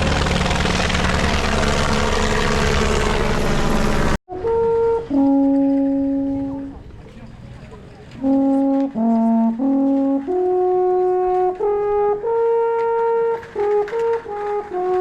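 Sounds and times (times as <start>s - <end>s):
brass horn playing slow tune: 4.3s - 6.8s, 8.2s - 15.0s.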